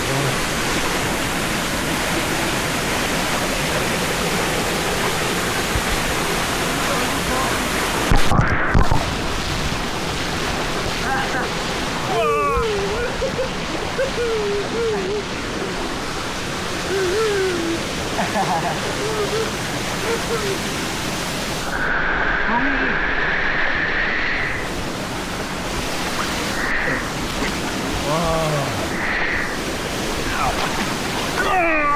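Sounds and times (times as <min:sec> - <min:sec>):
stream water rushing over rocks: 0:00.0 - 0:21.9, 0:24.4 - 0:31.9
human voice: 0:06.8 - 0:07.8, 0:12.1 - 0:15.8, 0:16.8 - 0:20.8, 0:28.0 - 0:28.8, 0:30.3 - 0:30.7, 0:31.4 - 0:31.9.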